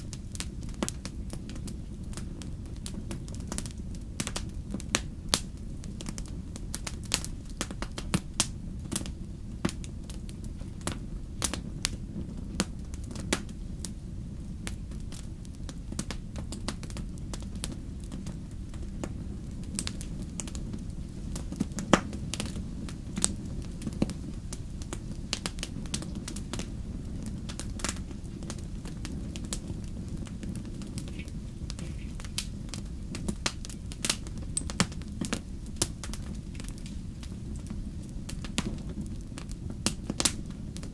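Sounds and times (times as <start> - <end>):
campfire crackling and popping: 0.0 - 40.9
low rumble of burning fire: 0.0 - 40.9.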